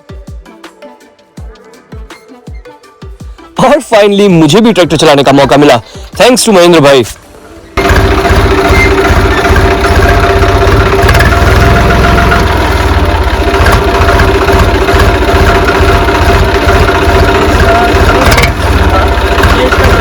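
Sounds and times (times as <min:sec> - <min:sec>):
tractor diesel engine chugging: 0:07.6 - 0:20.0.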